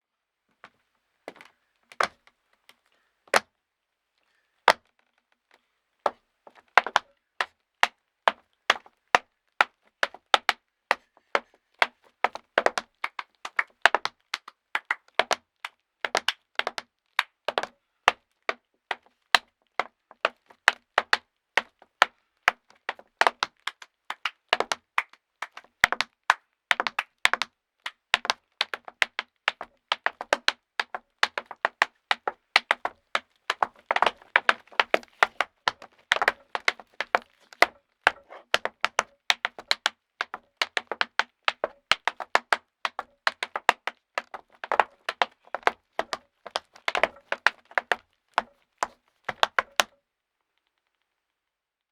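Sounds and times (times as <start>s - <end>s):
tap shoes on wooden board: 28.2s - 50.0s.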